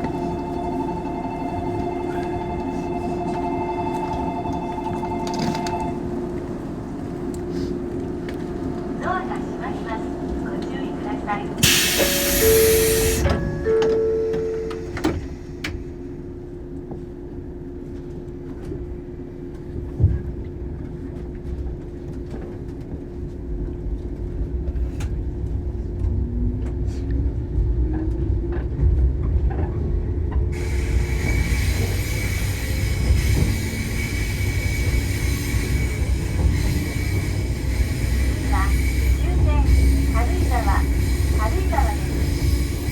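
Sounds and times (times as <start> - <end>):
electric train running: 9.4 - 15.8, 30.6 - 42.9
train carriage jolt: 11.6 - 15.8, 28.6 - 42.9.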